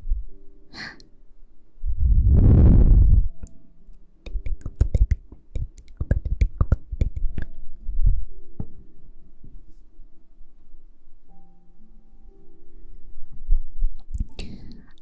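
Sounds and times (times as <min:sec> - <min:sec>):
sharp clicks and taps: 0:04.2 - 0:07.6.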